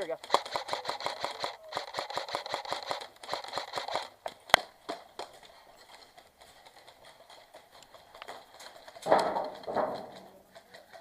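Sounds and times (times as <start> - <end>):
airsoft gun rapid fire: 0.0 - 4.7
loud sharp crack: 9.1 - 10.3.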